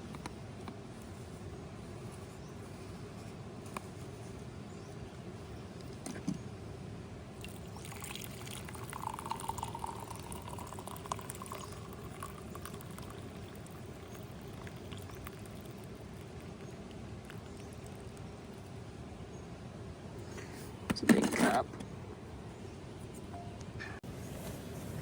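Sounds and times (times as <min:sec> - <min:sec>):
liquid pouring into cup: 0:07.4 - 0:18.7
liquid dripping: 0:07.4 - 0:18.8.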